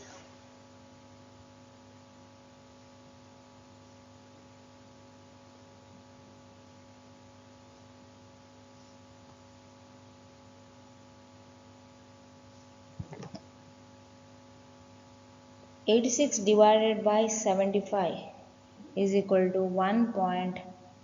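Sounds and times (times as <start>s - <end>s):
faint electrical hum: 0.0s - 21.0s
clicks: 13.0s - 13.4s.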